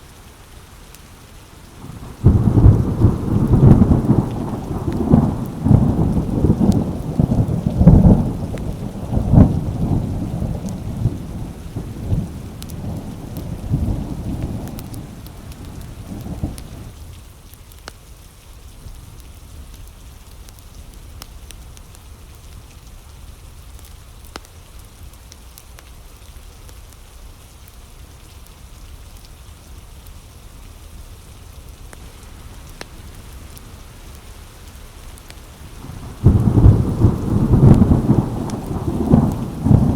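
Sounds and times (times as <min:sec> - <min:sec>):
steady rain: 0:00.0 - 0:39.9
thunder rumbling and cracking: 0:01.8 - 0:16.9, 0:32.0 - 0:39.9.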